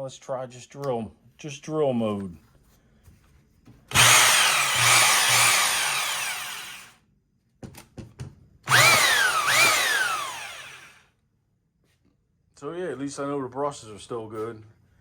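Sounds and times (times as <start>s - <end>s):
power drill motor whining: 3.9s - 7.0s, 8.7s - 11.0s.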